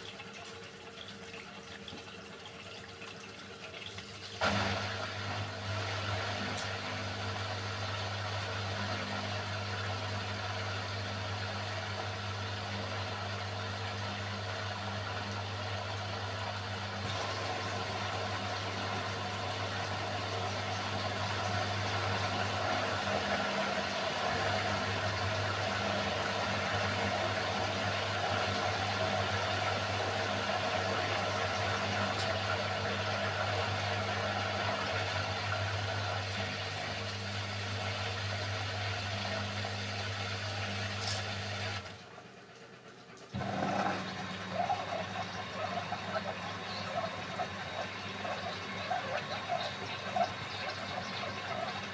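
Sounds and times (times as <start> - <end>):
drain pump humming: 0.0 - 51.9
water rushing: 17.1 - 32.2.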